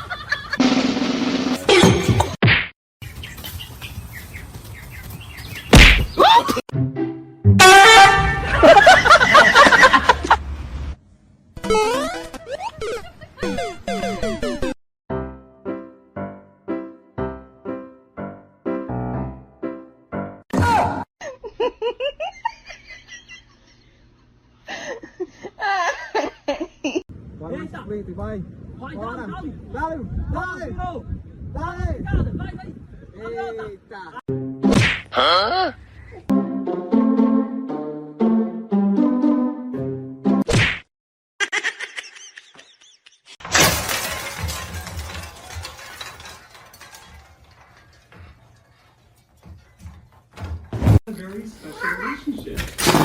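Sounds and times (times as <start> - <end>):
person laughing hard: 6.2 - 6.6
loud crash with clattering: 43.4 - 51.0, 52.6 - 53.0.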